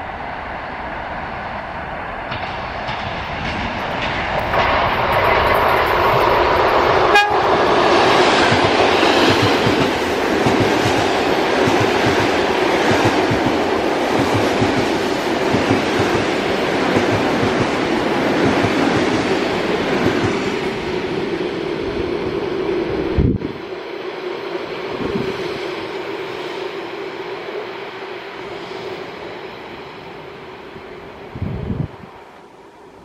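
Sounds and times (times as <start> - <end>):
train wheels clacking on rails: 2.2 - 21.4.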